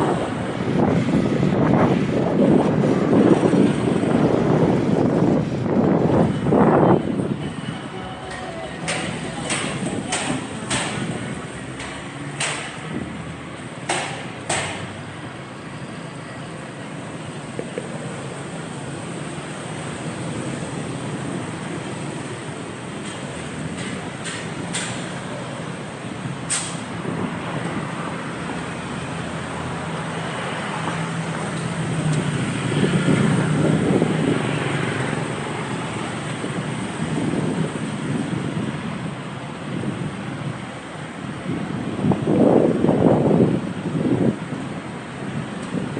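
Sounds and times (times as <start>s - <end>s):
wind on microphone: 0.0s - 15.5s, 16.5s - 45.9s
motorcycle engine and road noise: 0.0s - 45.9s
sharp knocks: 8.3s - 13.1s, 13.8s - 15.0s, 23.0s - 25.1s.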